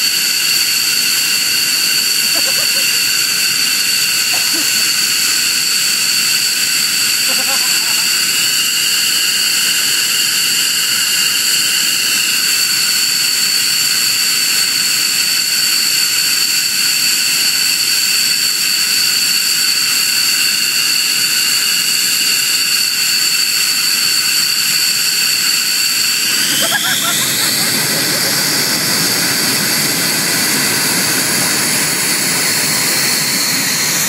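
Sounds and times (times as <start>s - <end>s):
jet engine roar: 0.0s - 15.4s, 19.7s - 34.0s
jet engine whistling whine: 0.0s - 34.0s.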